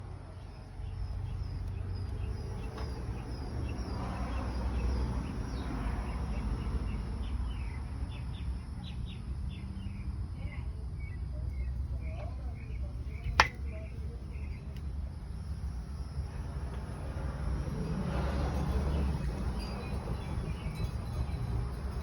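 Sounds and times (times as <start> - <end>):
small birds chirping: 0.3 - 16.1.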